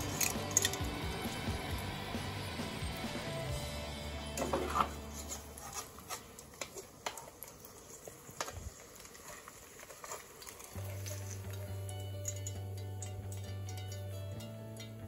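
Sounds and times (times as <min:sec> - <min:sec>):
metal tongs clicking: 0:00.0 - 0:00.8, 0:11.8 - 0:15.0
pork sizzling in a frying pan: 0:00.0 - 0:14.2.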